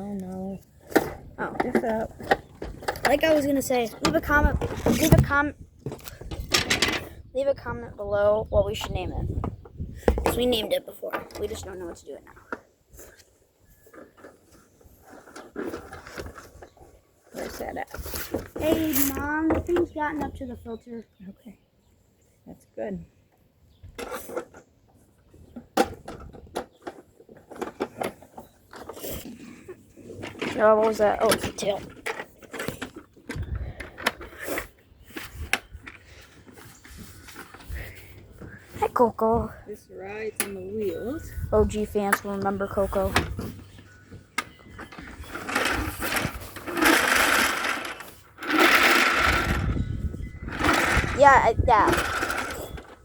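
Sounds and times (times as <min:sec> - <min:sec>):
hard plastic parts clattering: 0:00.8 - 0:07.2, 0:17.3 - 0:20.4, 0:25.5 - 0:29.3, 0:30.1 - 0:38.7, 0:42.0 - 0:49.8, 0:50.4 - 0:53.0
plastic wheels rattling whir: 0:13.8 - 0:19.7, 0:42.7 - 0:53.0.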